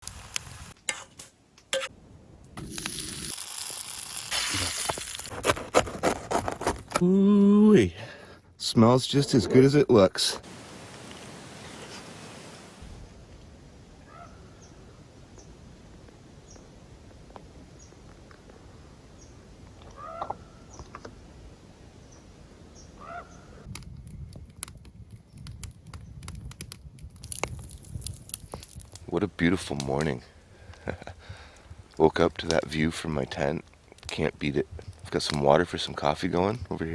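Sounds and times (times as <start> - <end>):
bread sizzling as it cooks: 0.0 - 1.1, 2.6 - 5.3, 26.4 - 29.1
small birds chirping: 10.4 - 13.0
sharp clicks and crackles: 23.7 - 29.1.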